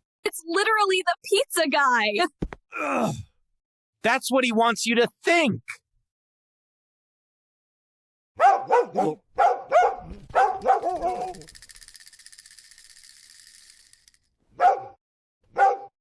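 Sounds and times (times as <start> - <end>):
dog barking: 8.4 - 11.4, 14.6 - 15.9
faint rapid high rattle: 10.2 - 14.4.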